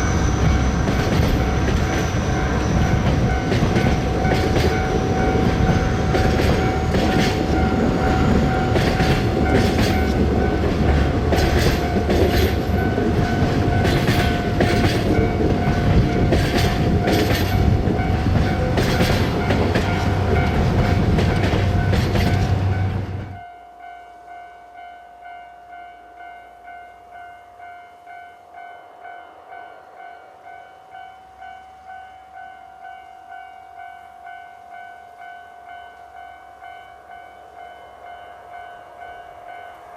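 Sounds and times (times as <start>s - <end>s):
train wheels clacking over rails: 0.0s - 23.4s.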